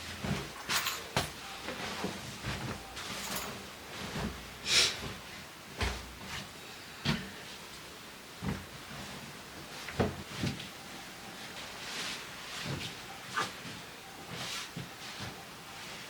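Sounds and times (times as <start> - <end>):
household objects knocking and rustling: 0.1 - 4.4.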